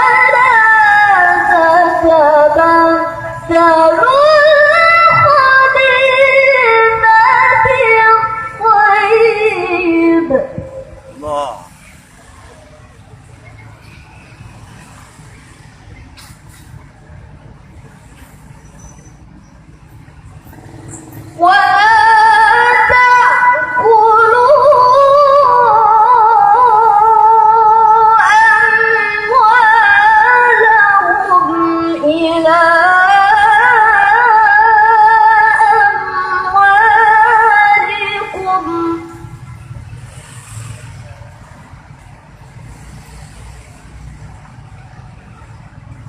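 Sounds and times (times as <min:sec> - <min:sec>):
girl reciting melodically: 0:21.3 - 0:39.1.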